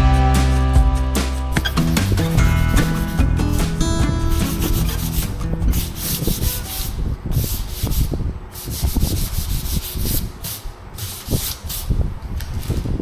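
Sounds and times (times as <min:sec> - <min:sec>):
hand rubbing car paint: 0:04.3 - 0:12.0.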